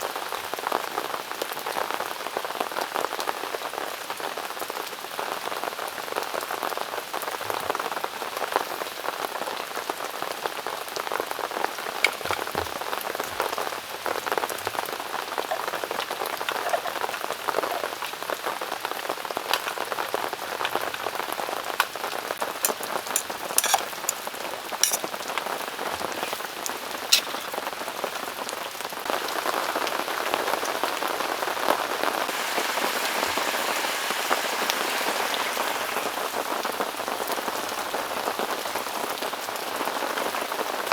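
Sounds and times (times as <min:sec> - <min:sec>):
heavy rain pouring: 0:00.0 - 0:40.9
sharper raindrops tapping: 0:11.5 - 0:39.0.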